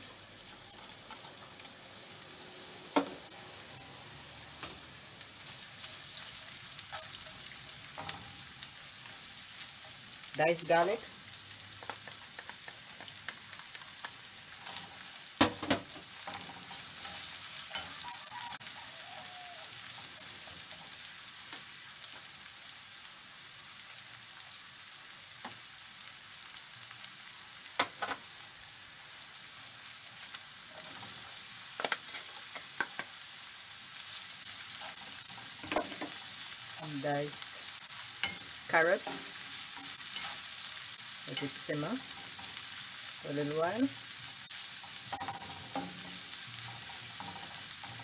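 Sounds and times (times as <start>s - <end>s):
onion and garlic sizzling in oil: 0.0s - 48.0s
stirring in a frying pan: 2.9s - 22.9s, 23.7s - 48.0s
sharp knocks on a pan: 15.4s - 15.9s.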